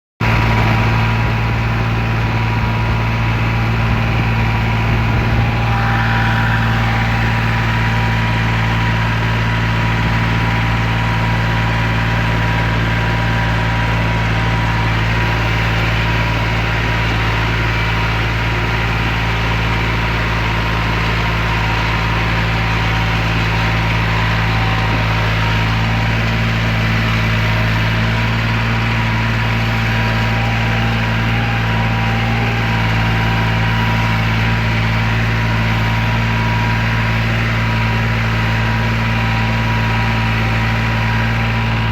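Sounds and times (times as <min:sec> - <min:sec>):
tractor diesel engine droning: 0:00.2 - 0:41.9.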